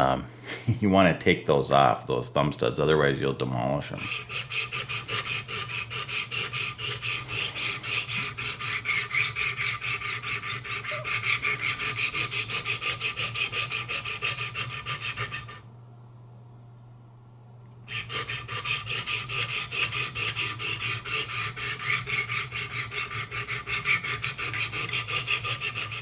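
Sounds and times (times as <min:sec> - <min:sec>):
sharpening stones scraping blade: 0:04.0 - 0:15.6, 0:18.0 - 0:26.0.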